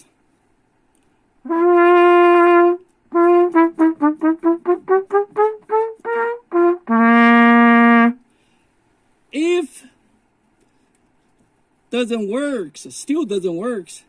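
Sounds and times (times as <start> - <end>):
trumpet playing notes: 1.4 - 8.2.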